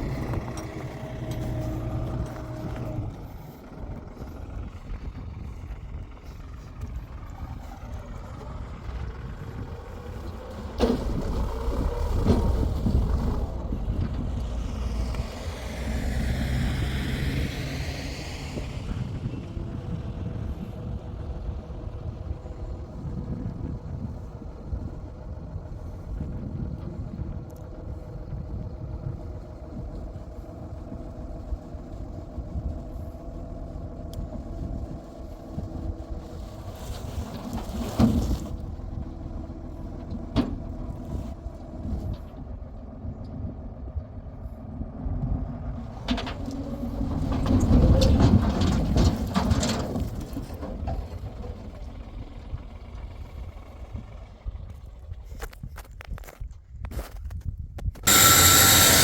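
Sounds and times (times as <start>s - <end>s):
heavy machinery rumbling: 0.0s - 55.5s, 58.0s - 59.0s
whine shifting in pitch: 58.0s - 59.0s.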